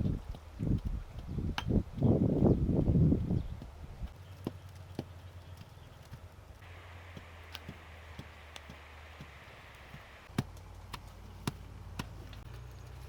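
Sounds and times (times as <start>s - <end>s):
steady low hum: 4.9s - 12.6s.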